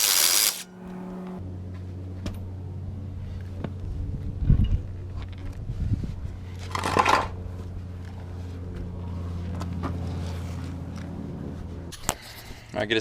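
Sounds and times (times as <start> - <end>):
short noisy burst: 0.0 - 0.8
steady low hum: 0.0 - 12.0.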